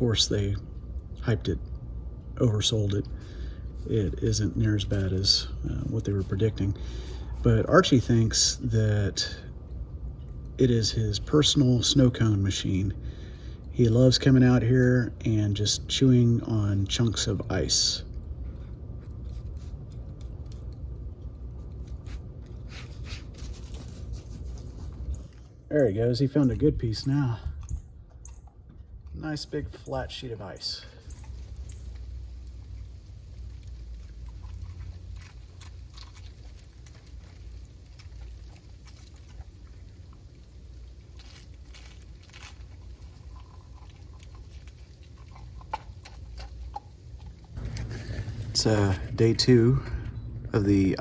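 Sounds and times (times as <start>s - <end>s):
steady low rumble: 15.1s - 51.0s
puppy crunching ice: 31.0s - 48.6s.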